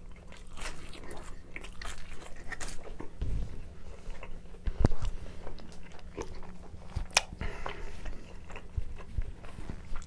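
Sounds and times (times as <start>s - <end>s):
wet chewing with mouth clicks: 0.0s - 10.0s
low thump: 3.2s - 3.6s.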